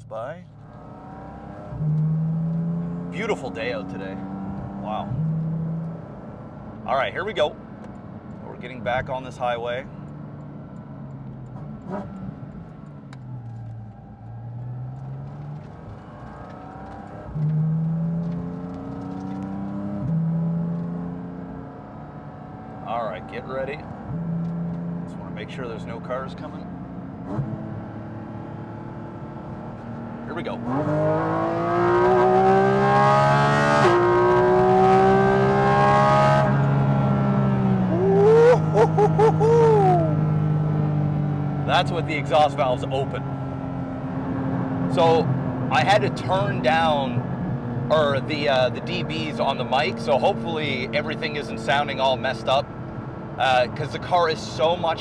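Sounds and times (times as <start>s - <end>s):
car engine accelerating: 0.0s - 55.0s
gear upshift: 29.4s - 40.8s.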